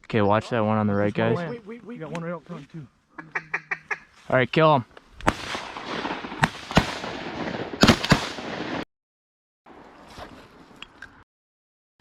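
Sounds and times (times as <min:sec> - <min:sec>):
shotgun blasts: 0:05.2 - 0:08.8.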